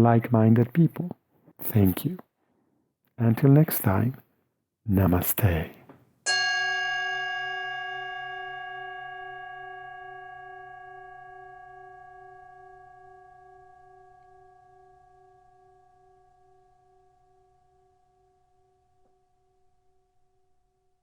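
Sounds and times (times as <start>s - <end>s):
singing bowl ringing: 6.3s - 19.4s.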